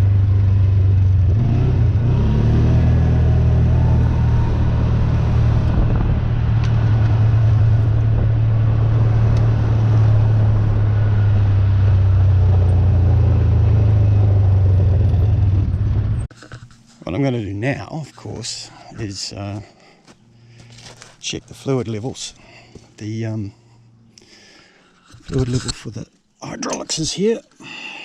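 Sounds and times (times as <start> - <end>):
tractor engine running: 3.4 - 16.4.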